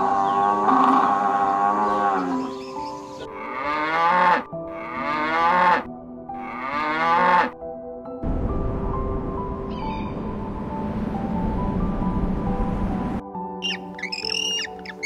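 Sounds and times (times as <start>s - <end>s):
cattle mooing: 3.3s - 7.6s.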